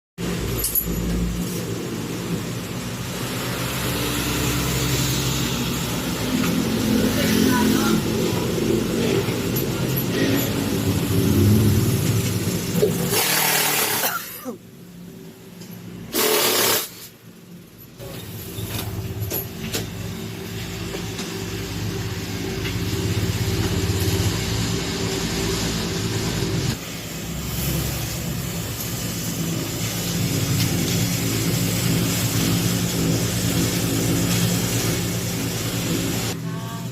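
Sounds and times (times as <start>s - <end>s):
loud hissing bursts: 10.6s - 14.2s, 16.1s - 17.2s, 21.6s - 36.4s.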